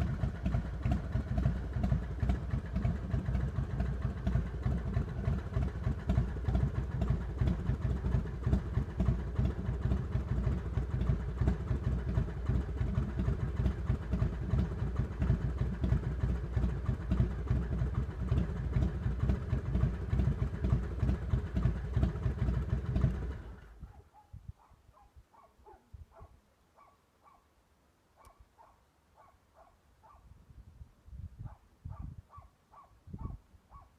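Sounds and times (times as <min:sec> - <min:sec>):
motorcycle engine idling: 0:00.0 - 0:23.9.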